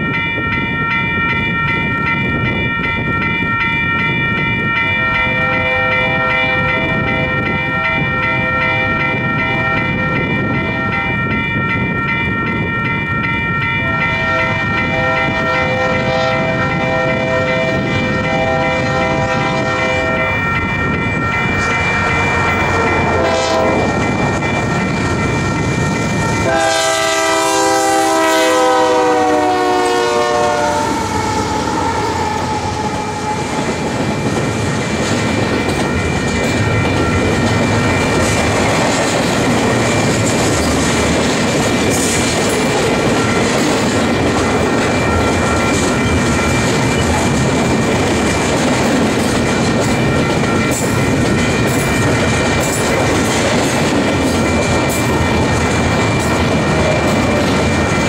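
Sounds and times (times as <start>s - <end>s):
train rumbling and clattering past: 0.0s - 58.0s
train horn blasts: 5.4s - 7.2s, 13.8s - 20.4s, 21.6s - 24.0s, 26.4s - 33.8s.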